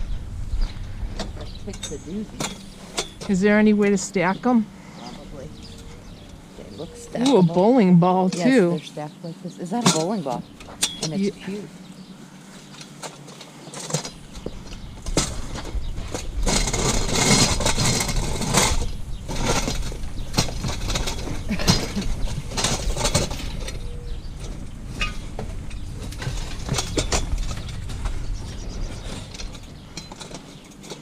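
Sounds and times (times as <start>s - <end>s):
steady low rumble: 0.0s - 9.8s, 14.1s - 30.9s
scrap items clattering and knocking: 12.6s - 31.0s.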